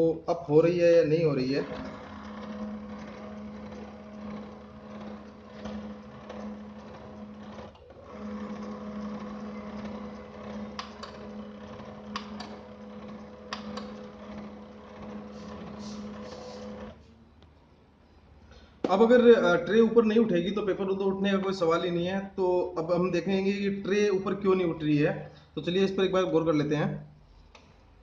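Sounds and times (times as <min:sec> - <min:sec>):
printer motor hum: 0:01.5 - 0:17.0
printer pickup clicks: 0:12.1 - 0:12.6, 0:13.4 - 0:14.0.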